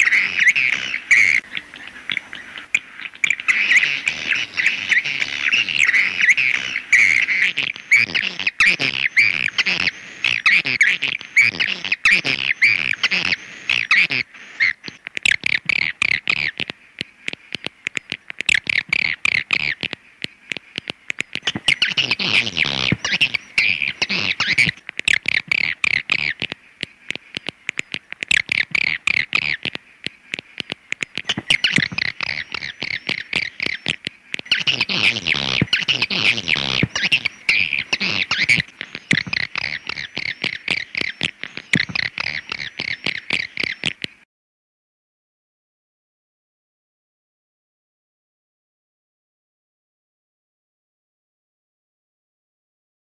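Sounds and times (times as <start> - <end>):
swiftlets twittering chirps: 0.0 - 44.0.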